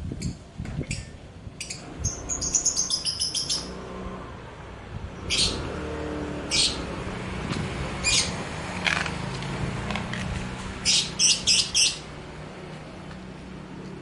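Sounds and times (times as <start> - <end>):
songbirds chirping: 0.2 - 4.0, 4.6 - 7.1, 10.7 - 14.0.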